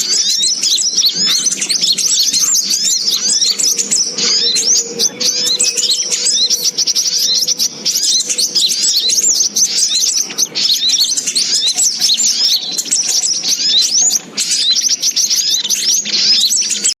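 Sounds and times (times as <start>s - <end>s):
birds chirping and twittering: 0.0s - 17.0s.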